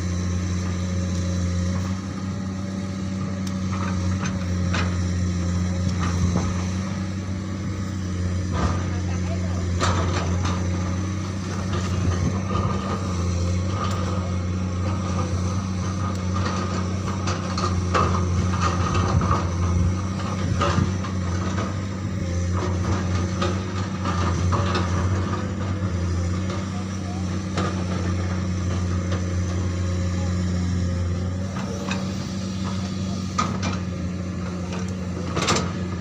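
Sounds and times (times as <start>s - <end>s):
excavator diesel engine running: 0.0s - 36.0s
machine clanks and knocks: 8.4s - 13.2s, 31.6s - 36.0s.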